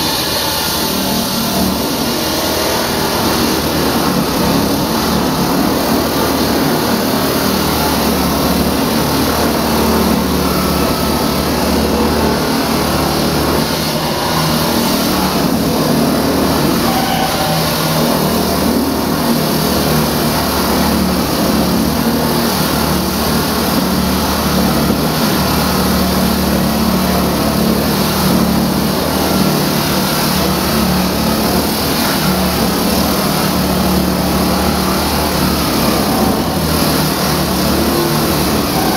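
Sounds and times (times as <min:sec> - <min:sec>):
concrete saw engine drone: 0:00.0 - 0:38.9
saw blade grinding hiss: 0:09.4 - 0:20.1.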